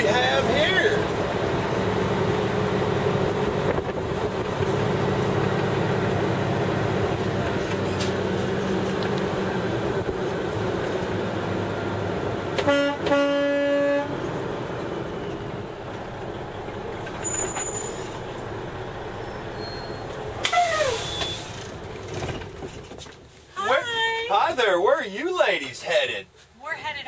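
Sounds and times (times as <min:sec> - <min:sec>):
truck engine running: 0:00.0 - 0:23.0
truck horn blasts: 0:12.6 - 0:14.2.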